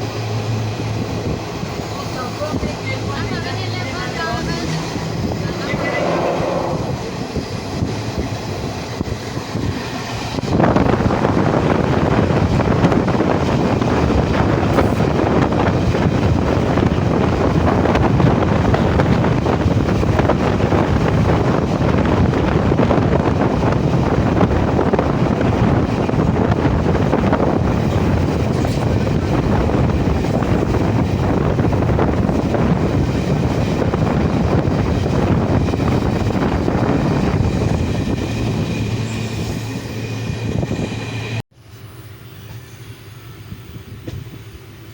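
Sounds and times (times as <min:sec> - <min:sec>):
train rushing: 0:00.0 - 0:44.9.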